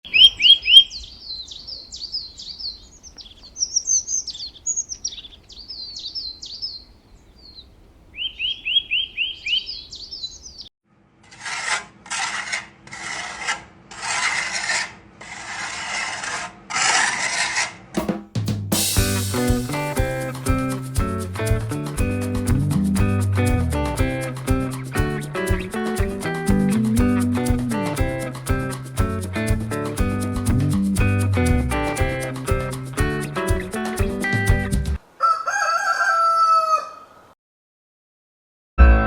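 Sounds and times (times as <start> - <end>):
small birds chirping: 0.0 - 10.7
rasping filing strokes: 11.3 - 17.9.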